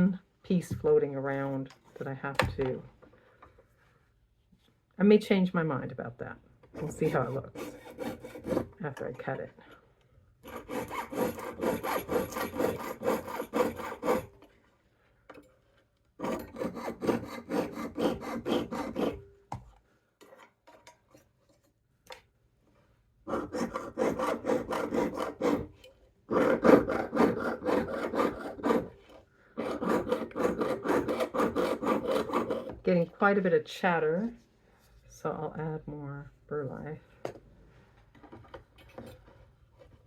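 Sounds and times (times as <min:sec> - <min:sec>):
jeweler's saw cutting metal: 0:06.8 - 0:08.7, 0:10.4 - 0:14.3, 0:16.2 - 0:19.2, 0:23.3 - 0:25.7, 0:26.3 - 0:29.0, 0:29.6 - 0:32.7.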